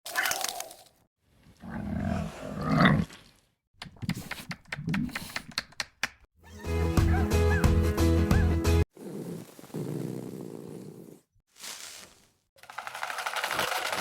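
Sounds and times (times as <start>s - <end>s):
dog-like animal growl: 8.9s - 11.3s.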